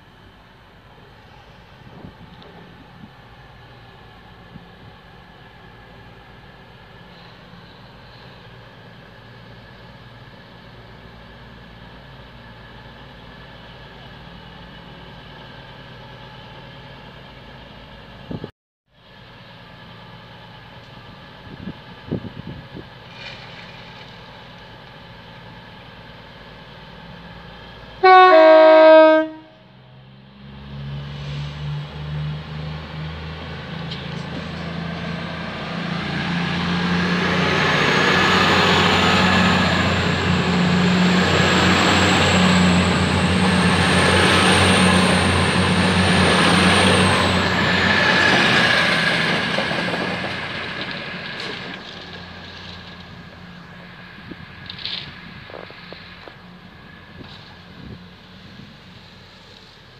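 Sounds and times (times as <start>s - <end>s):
diesel train passing: 0.0s - 59.9s
two-tone train horn: 28.0s - 29.7s.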